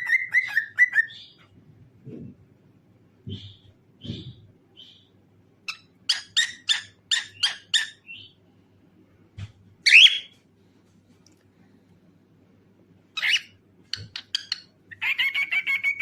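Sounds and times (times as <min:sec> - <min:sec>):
cockatiel chirping: 0:00.0 - 0:01.4, 0:05.7 - 0:08.3, 0:09.9 - 0:10.3, 0:13.2 - 0:16.0.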